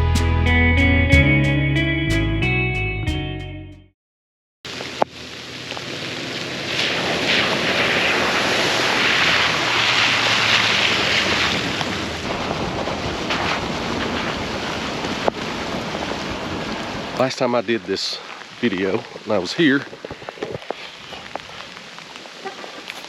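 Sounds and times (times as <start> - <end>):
background guitar music: 0.0 - 3.9
wind and rain rushing: 4.7 - 23.0
wind buffeting microphone: 10.8 - 17.2.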